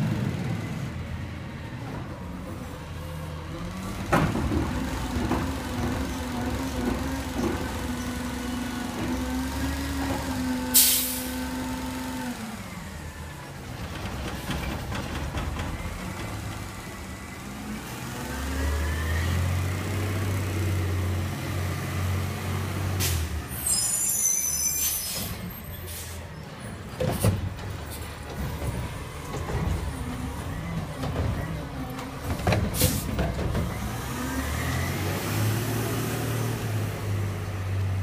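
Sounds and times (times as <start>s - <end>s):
air-brake hiss: 10.7s - 11.4s, 23.0s - 26.3s
truck engine revving: 27.4s - 38.0s.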